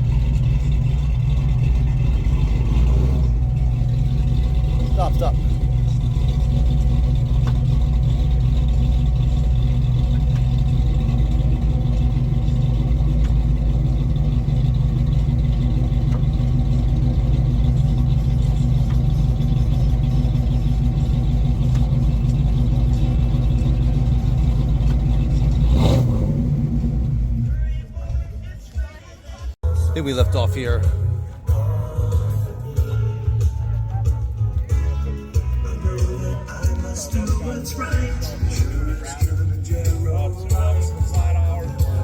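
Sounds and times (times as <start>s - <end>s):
car engine idling: 0.0s - 42.0s.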